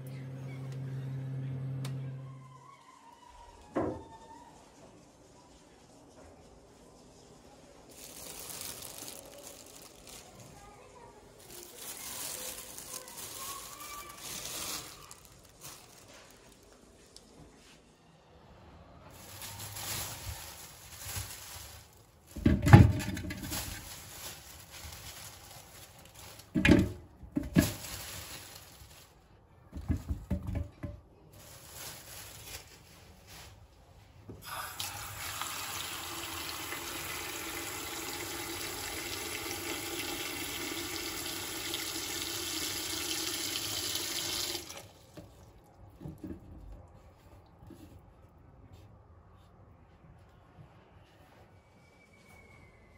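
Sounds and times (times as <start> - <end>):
knocks and clatters of handling: 19.1 - 33.5, 45.1 - 46.9.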